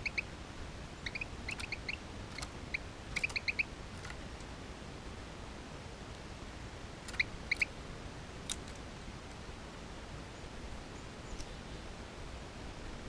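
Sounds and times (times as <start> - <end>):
sharp bird calls: 0.0 - 0.3, 1.0 - 3.7, 7.1 - 7.7
low outdoor rumble: 0.0 - 13.0.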